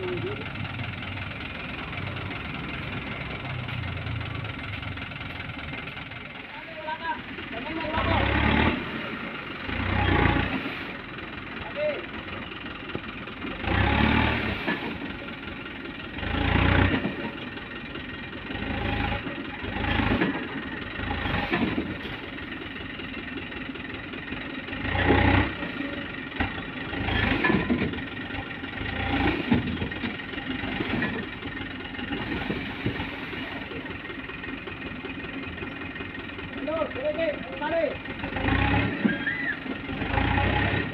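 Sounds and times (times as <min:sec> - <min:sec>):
truck diesel engine surging: 0:00.0 - 0:40.9.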